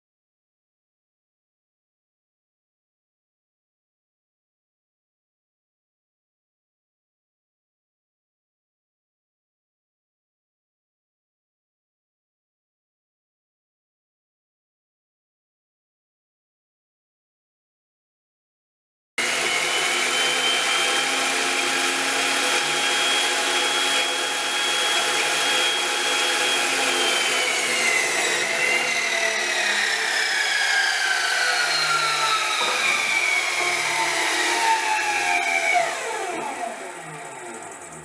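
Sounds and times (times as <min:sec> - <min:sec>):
power tool motor whining: 0:19.2 - 0:38.0.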